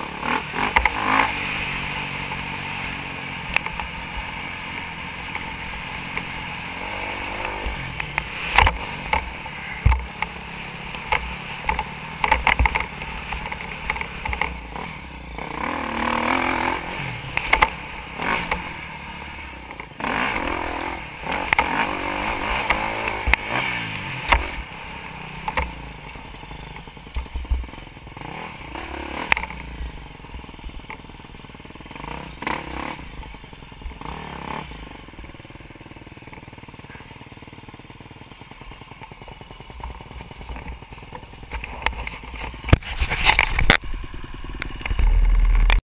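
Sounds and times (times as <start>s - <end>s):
dirt bike engine revving: 0.0s - 45.8s
sharp knocks and rattles: 7.4s - 14.6s.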